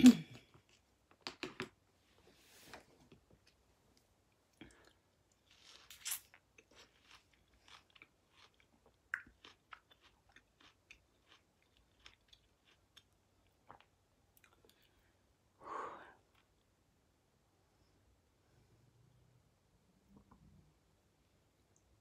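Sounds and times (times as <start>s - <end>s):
crisp bite of fruit: 5.4s - 11.4s
soft wet chewing clicks: 6.6s - 15.0s.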